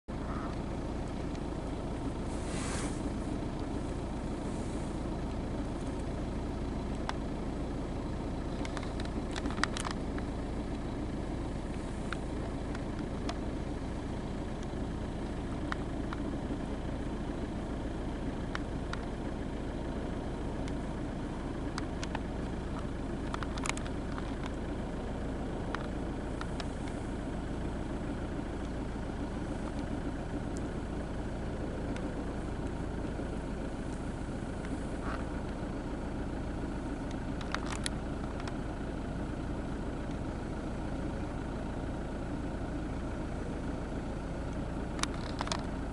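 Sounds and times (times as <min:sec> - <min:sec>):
car engine idling: 0:00.0 - 0:45.9
faint clicks: 0:08.5 - 0:10.3.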